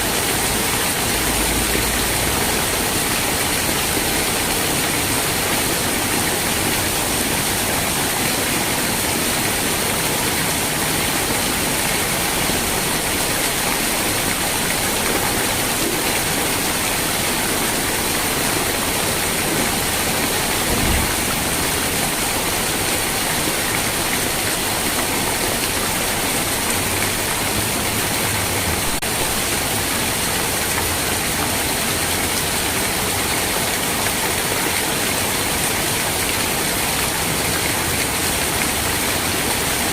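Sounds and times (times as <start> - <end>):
heavy rain: 0.0 - 39.9
low thump: 20.5 - 21.6.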